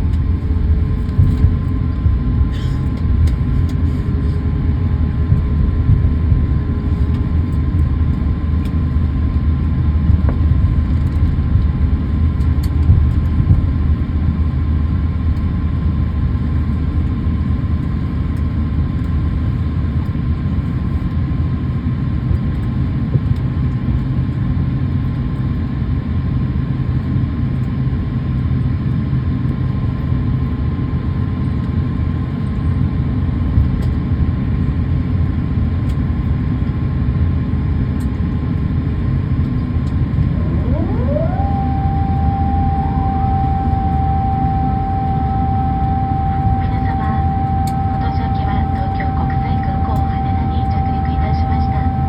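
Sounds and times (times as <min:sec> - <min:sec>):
airliner cabin engine rumble: 0:00.0 - 0:52.0
faint steady whine: 0:38.8 - 0:52.0.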